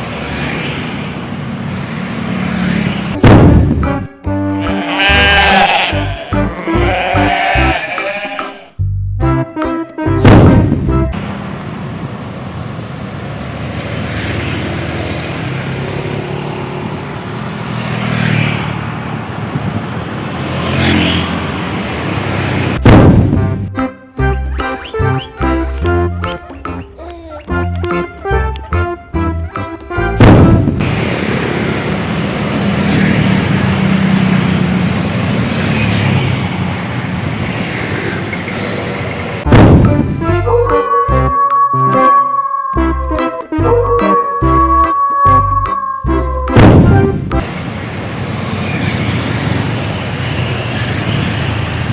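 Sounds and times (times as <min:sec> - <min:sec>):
rushing road noise: 0:00.0 - 0:08.2, 0:10.2 - 0:40.4, 0:44.6 - 0:51.9
highway traffic: 0:00.0 - 0:08.8, 0:10.0 - 0:51.9
vehicles passing: 0:00.0 - 0:08.8, 0:10.0 - 0:51.9
truck engine hum: 0:01.2 - 0:06.9, 0:20.9 - 0:37.6, 0:39.1 - 0:42.1, 0:42.8 - 0:51.9.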